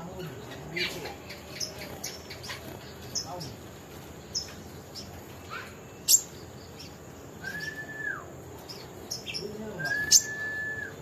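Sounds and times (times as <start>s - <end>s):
songbird chirping: 0.0s - 11.0s
sharp high bird calls: 4.3s - 11.0s
whistled bird notes: 5.4s - 11.0s.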